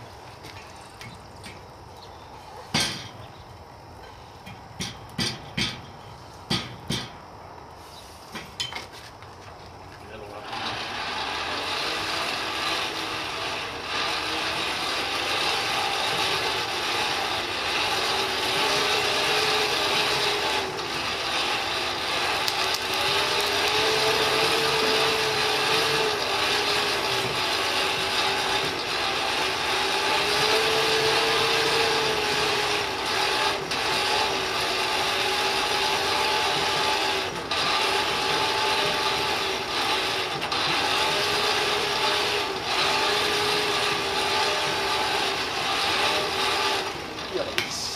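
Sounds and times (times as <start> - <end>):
forge blower whirring: 10.0 - 47.9.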